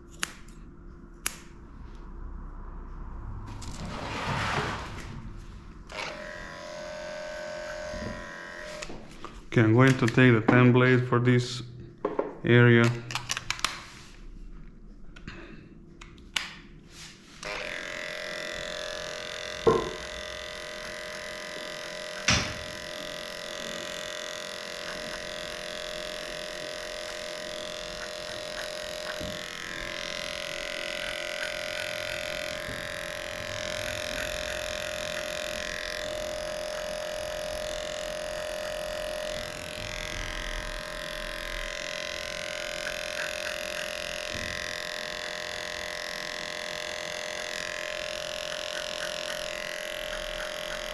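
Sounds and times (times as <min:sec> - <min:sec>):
electric clippers humming: 0:05.8 - 0:10.7, 0:16.4 - 0:50.9.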